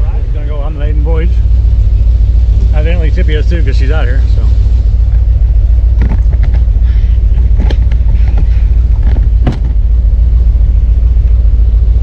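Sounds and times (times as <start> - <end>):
car engine deep rumble: 0.0 - 12.0
short knocks: 7.4 - 9.8.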